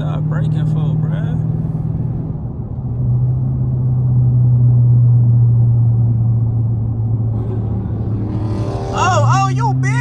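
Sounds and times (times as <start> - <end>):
car engine droning at cruise: 0.0 - 10.0.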